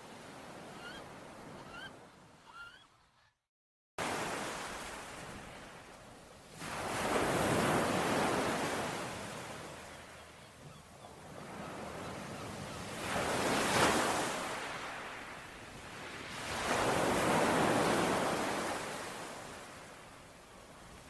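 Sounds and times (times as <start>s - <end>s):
ocean waves washing onto shore: 4.0s - 10.4s, 11.2s - 21.0s.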